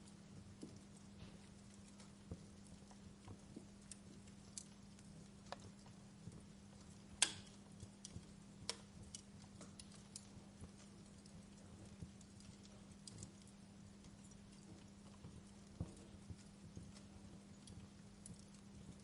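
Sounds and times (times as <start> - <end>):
faint steady hum: 0.0 - 19.0
wood fire crackling: 0.0 - 19.0.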